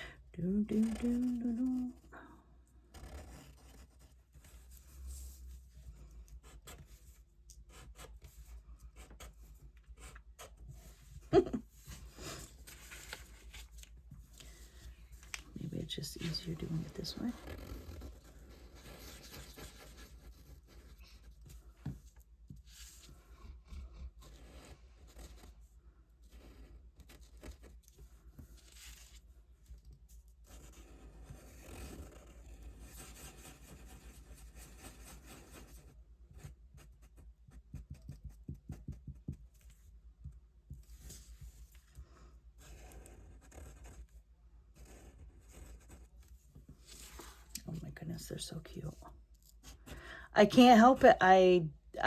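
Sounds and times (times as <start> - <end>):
paper rustling and scraping: 10.8 - 23.4
small scratches and clicks: 12.4 - 25.6.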